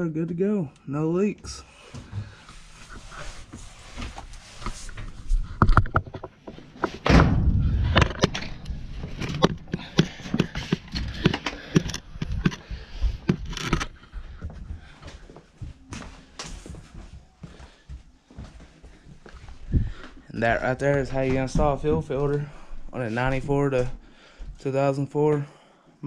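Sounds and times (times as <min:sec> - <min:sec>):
objects knocking and clunking: 0:04.0 - 0:14.3
heavy thud: 0:07.0 - 0:09.6.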